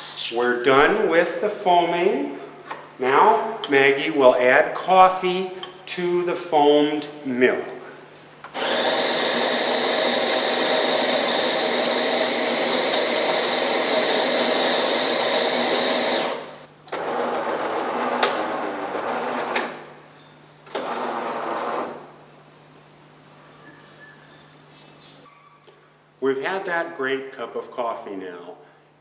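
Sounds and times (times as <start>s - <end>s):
coffee machine motor whine: 8.5s - 20.0s, 20.7s - 22.2s
coffee machine noise: 8.5s - 20.0s, 20.7s - 22.2s.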